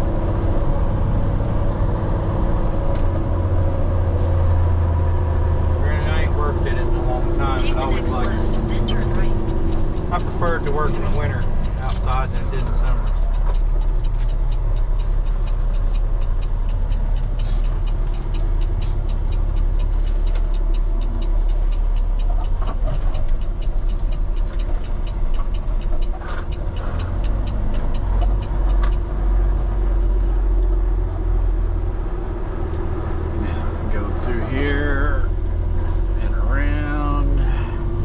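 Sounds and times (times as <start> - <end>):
diesel truck engine rumbling: 0.0 - 38.0
light ticks: 6.7 - 31.8.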